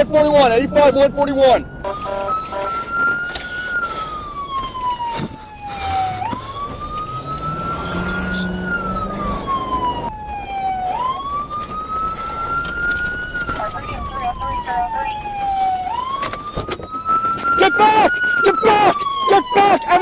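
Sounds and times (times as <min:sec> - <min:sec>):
emergency siren wailing: 0:00.0 - 0:20.0.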